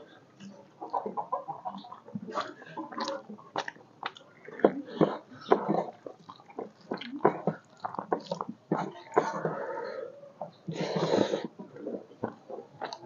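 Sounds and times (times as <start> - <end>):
open-mouth chewing and lip smacking: 1.7 - 9.5, 11.6 - 13.0.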